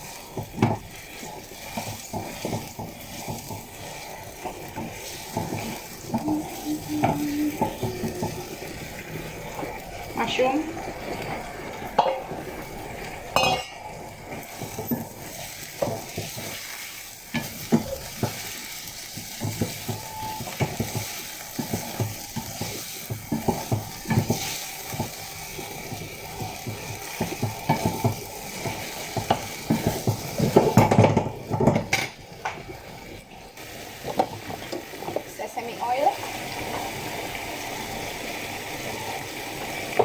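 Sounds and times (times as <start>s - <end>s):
food sizzling in pan: 0.0s - 40.0s.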